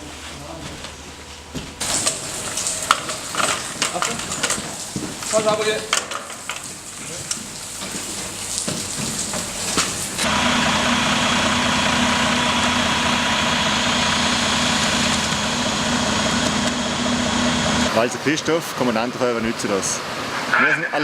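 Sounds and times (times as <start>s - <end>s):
vehicle engine idling: 10.0s - 17.9s.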